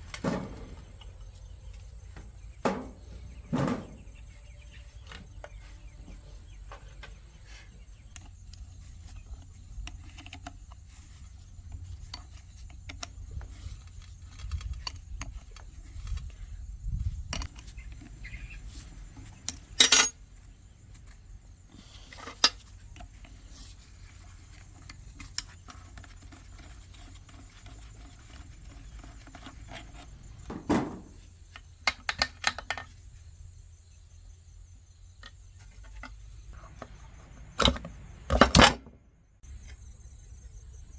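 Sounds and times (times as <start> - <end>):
metal tools clinking: 19.2 - 20.2.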